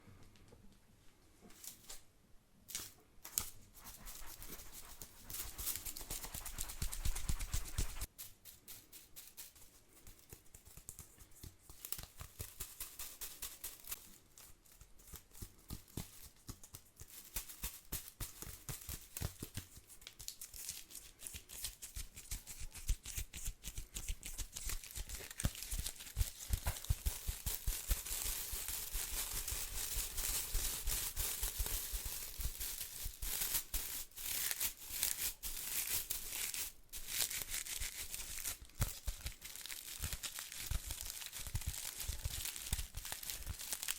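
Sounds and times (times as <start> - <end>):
broom bristles rustling: 3.3 - 9.6, 24.8 - 43.9.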